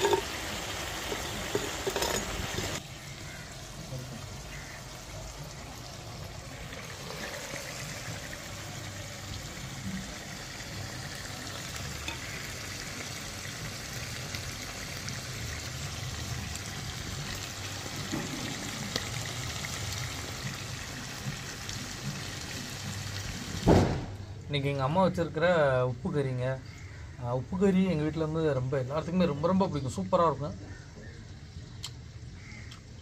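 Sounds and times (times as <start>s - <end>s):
food sizzling in oil: 0.0s - 23.9s.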